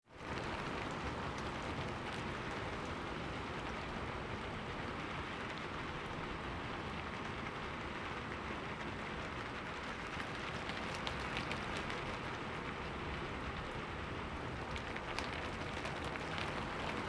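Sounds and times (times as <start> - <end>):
heavy rain on hard surfaces: 0.2 - 17.0
raindrop ticks: 9.6 - 12.8, 14.6 - 17.0.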